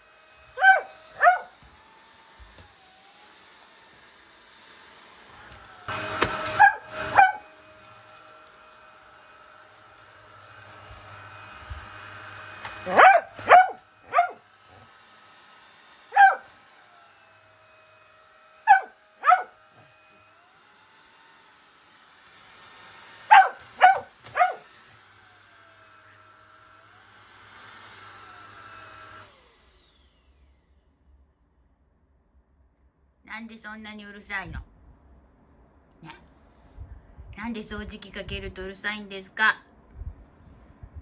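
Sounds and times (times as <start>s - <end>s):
vacuum cleaner humming: 0.0s - 30.1s
dog barking: 0.6s - 1.5s, 6.4s - 7.5s, 12.8s - 14.9s, 16.1s - 16.5s, 18.7s - 19.6s, 23.3s - 24.7s.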